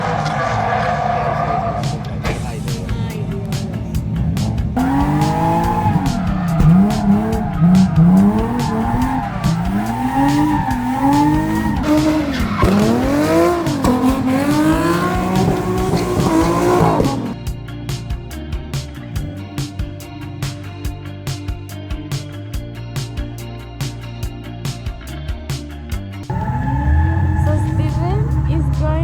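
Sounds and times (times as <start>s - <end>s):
car engine revving: 0.0s - 18.1s, 18.9s - 20.6s, 26.3s - 29.0s
music: 1.9s - 29.0s
tyre squeal: 4.8s - 17.4s, 26.3s - 28.6s.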